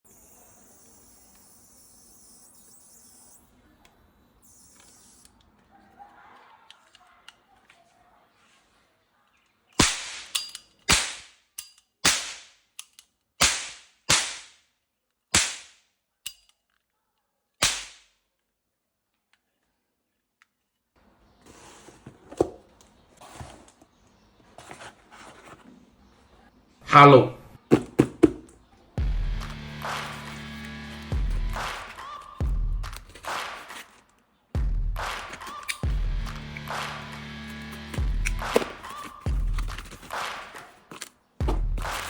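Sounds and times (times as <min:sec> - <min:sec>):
gunshots: 0:34.6 - 0:37.2.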